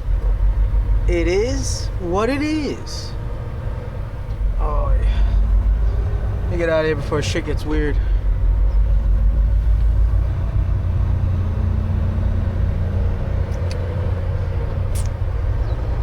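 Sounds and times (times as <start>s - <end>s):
truck diesel engine rumbling: 0.0s - 16.0s
faint short ticks: 14.9s - 15.2s.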